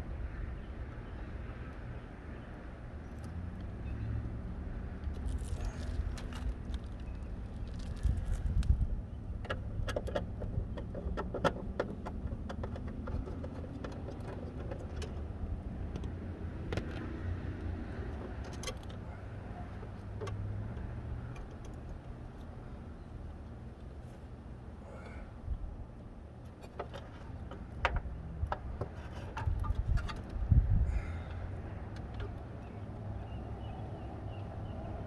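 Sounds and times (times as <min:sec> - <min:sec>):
steady low rumble: 0:04.6 - 0:09.8.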